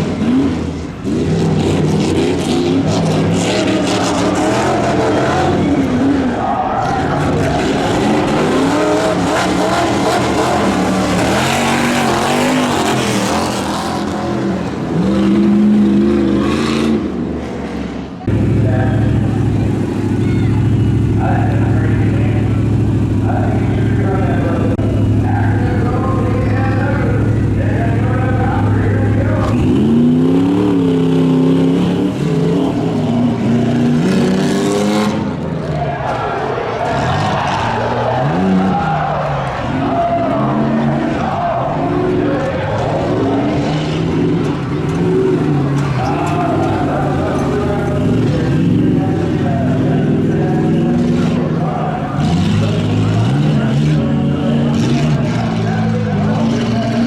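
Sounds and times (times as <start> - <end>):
truck engine revving hard: 0.0 - 57.0
tyre and dirt noise: 0.0 - 57.0.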